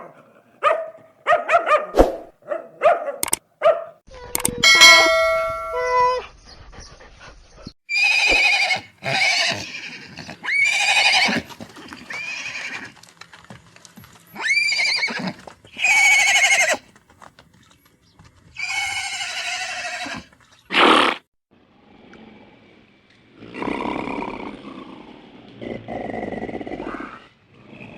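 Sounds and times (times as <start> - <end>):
short ringing chime: 4.6 - 6.2
horse whinnying: 7.9 - 12.9, 14.4 - 16.9, 18.6 - 21.2.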